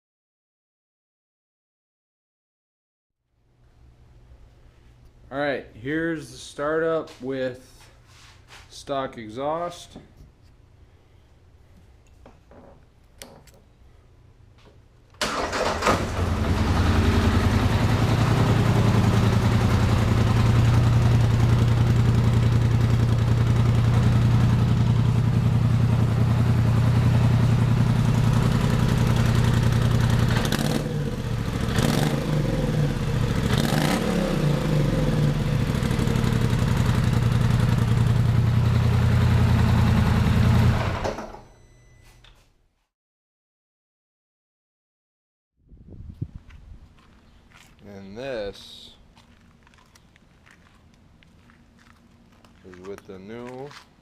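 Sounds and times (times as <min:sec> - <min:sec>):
atv engine idling: 0:16.0 - 0:33.6, 0:34.5 - 0:40.7.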